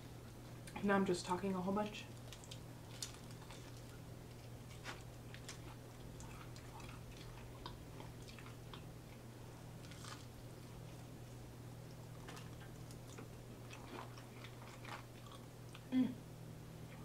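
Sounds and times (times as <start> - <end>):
steady low hum: 0.0 - 17.0
chewing food: 2.1 - 11.1, 11.8 - 15.9.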